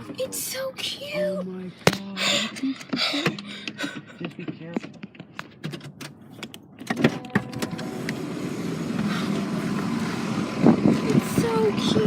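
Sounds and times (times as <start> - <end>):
motor vehicle running: 2.5 - 12.0
small electric motor whine: 7.4 - 12.0.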